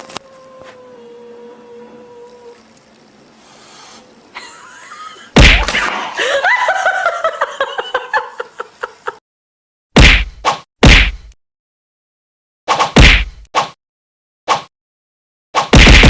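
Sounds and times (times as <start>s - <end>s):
person laughing: 4.3s - 5.4s, 6.2s - 9.2s.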